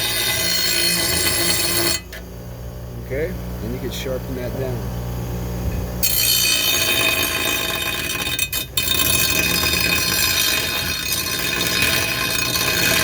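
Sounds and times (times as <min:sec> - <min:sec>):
metal grinding on grinder wheel: 0:00.0 - 0:02.2, 0:06.0 - 0:13.0
grinder motor humming: 0:00.0 - 0:13.0.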